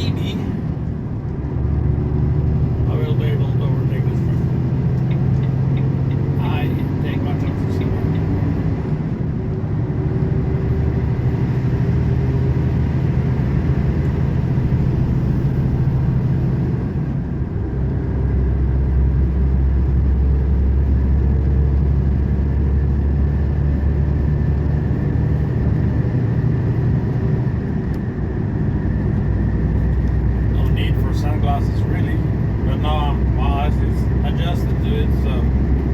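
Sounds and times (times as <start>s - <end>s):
truck diesel engine pulling: 0.0s - 35.9s.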